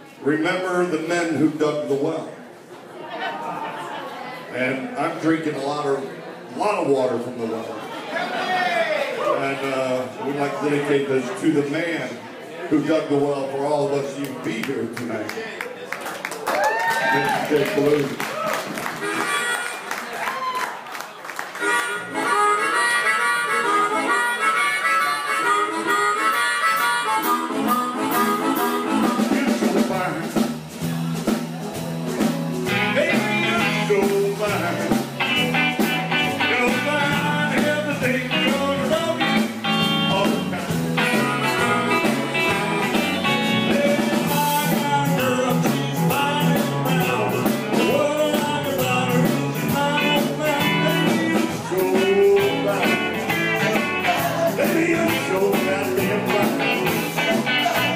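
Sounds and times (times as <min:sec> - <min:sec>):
live blues band: 0:09.2 - 0:57.9
harmonica: 0:19.0 - 0:20.0, 0:21.6 - 0:30.2, 0:32.4 - 0:57.9.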